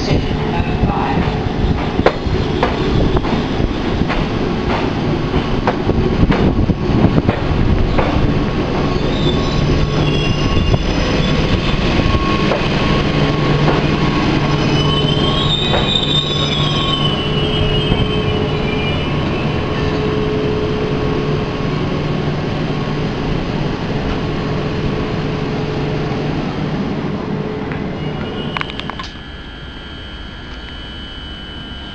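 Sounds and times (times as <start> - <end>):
electric train running hum: 0.0 - 31.9
high-pitched wheel squeal: 8.9 - 20.4.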